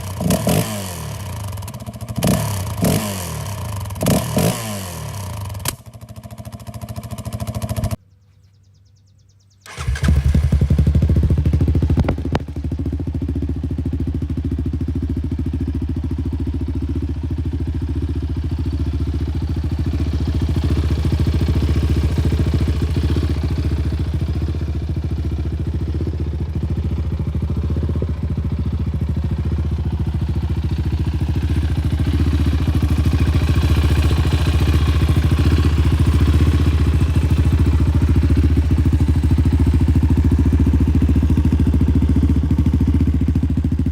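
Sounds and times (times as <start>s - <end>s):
engine idling: 9.7s - 43.9s.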